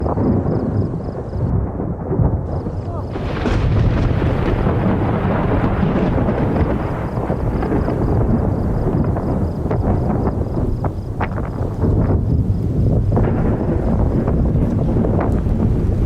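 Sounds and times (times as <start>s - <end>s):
thunder rumbling: 0.0s - 16.0s.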